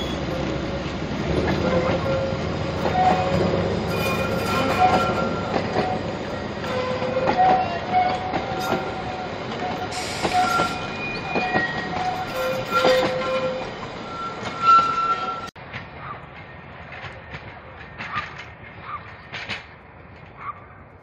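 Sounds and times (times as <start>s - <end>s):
train wheels squealing: 0.0s - 0.5s, 1.6s - 15.5s
wheels clicking over rail joints: 0.0s - 21.0s.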